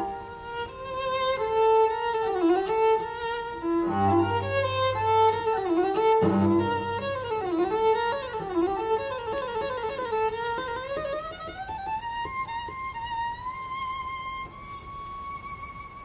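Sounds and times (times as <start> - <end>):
violin melody with vibrato: 0.0 - 16.0
low notes: 3.9 - 9.3.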